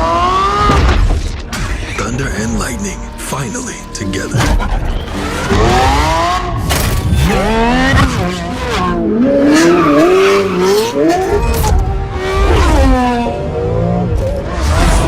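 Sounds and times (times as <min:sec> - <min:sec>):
car engine revving hard: 0:04.4 - 0:15.0.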